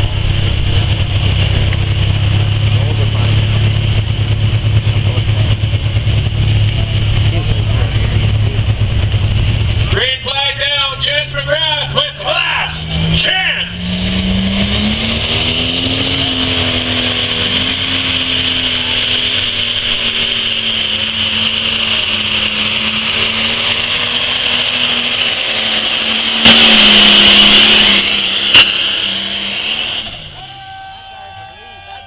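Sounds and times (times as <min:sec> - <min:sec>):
loud rushing noise: 0:00.0 - 0:30.5
tractor engine running hard: 0:00.0 - 0:32.0.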